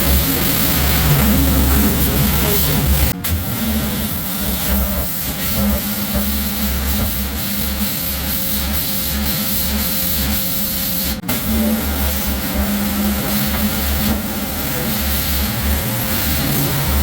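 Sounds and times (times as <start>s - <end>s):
low motor drone: 0.0s - 7.8s, 11.2s - 17.0s
pressure washer spray hiss: 0.0s - 17.0s.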